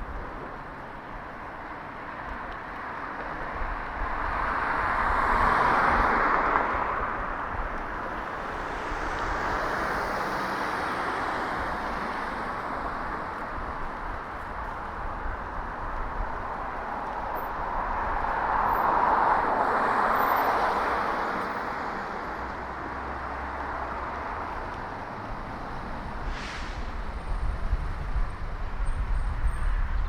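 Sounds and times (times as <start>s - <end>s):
car passing: 3.8s - 14.2s, 16.3s - 27.8s.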